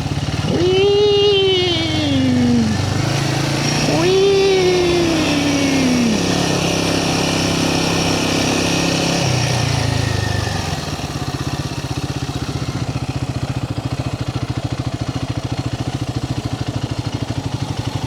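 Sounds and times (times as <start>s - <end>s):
motorcycle engine idling: 9.8s - 18.0s.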